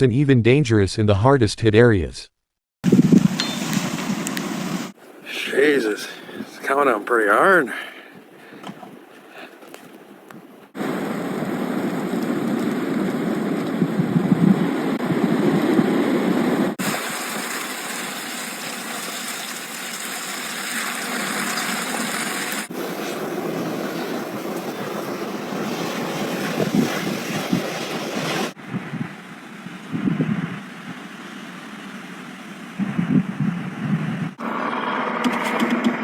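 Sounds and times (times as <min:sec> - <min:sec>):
strong wind gusting: 0:02.9 - 0:09.4, 0:10.0 - 0:17.2, 0:21.5 - 0:31.7, 0:32.8 - 0:35.1
wind buffeting microphone: 0:05.8 - 0:16.8, 0:22.7 - 0:34.4.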